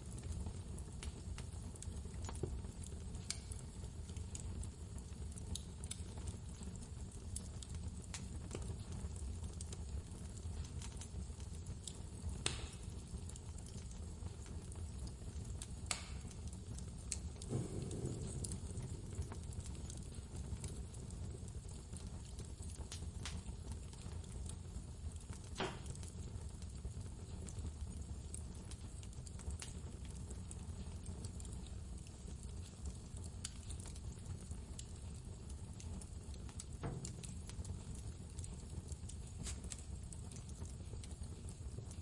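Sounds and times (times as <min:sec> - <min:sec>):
wood fire crackling and popping: 0:00.0 - 0:42.0
blizzard wind rumble: 0:17.5 - 0:20.5.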